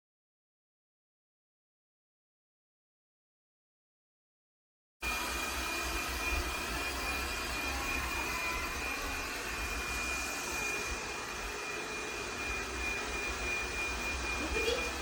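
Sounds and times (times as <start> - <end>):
robot vacuum cleaner running: 5.0 - 15.0.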